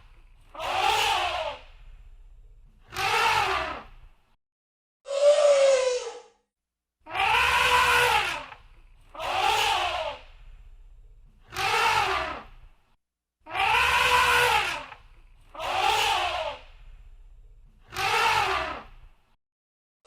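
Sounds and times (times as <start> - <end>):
elephant trumpeting: 7.1 - 8.5, 13.5 - 15.0.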